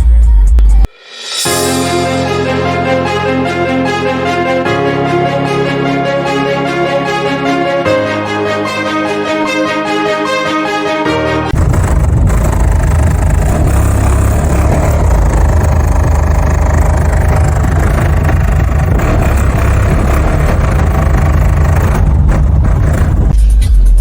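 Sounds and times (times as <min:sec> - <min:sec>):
car deep rumble: 0:11.5 - 0:23.4.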